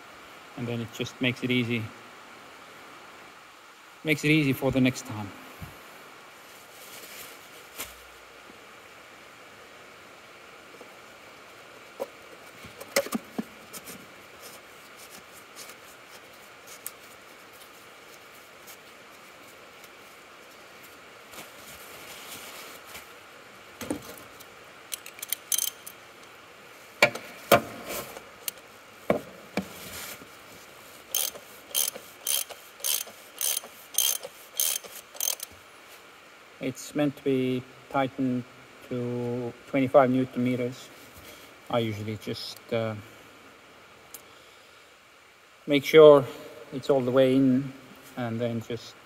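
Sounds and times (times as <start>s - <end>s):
ratchet wrench clicking: 24.9s - 26.0s, 31.1s - 35.5s
tool handling knocks and clicks: 27.0s - 29.8s.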